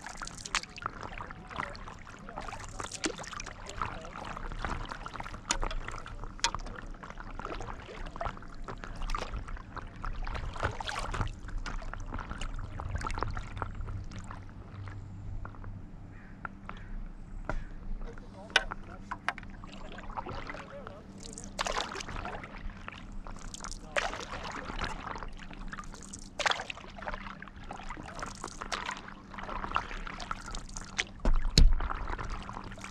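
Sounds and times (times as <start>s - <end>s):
water dripping: 0.0s - 9.8s, 19.3s - 22.2s, 23.2s - 25.0s, 25.7s - 26.9s, 27.7s - 32.9s
paddle strokes in water: 0.0s - 15.6s, 17.6s - 32.9s.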